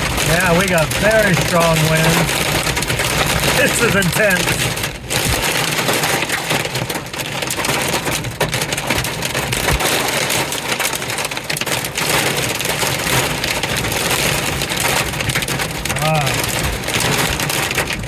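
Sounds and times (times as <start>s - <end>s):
heavy rain hissing: 0.0s - 8.1s, 15.5s - 17.5s
raindrops pattering: 0.0s - 18.0s.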